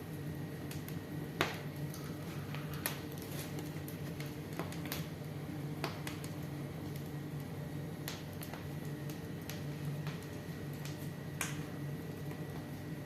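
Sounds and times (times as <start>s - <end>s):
steady low hum: 0.0s - 13.0s
wood fire crackling and popping: 0.0s - 13.0s.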